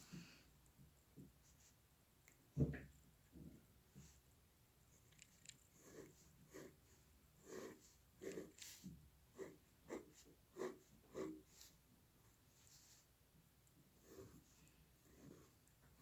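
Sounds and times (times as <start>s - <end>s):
drawing strokes on paper: 5.7s - 13.2s, 13.9s - 16.0s.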